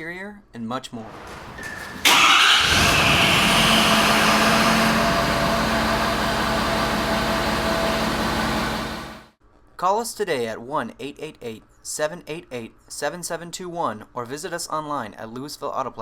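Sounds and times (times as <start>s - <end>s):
diesel engine starting and idling: 1.0s - 9.4s.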